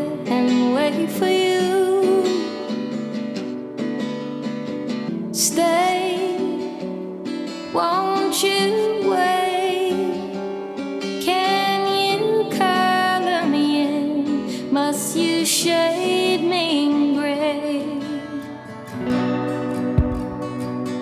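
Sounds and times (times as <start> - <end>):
woman singing: 0.0 - 3.0, 5.3 - 19.1
acoustic guitar: 0.0 - 21.0.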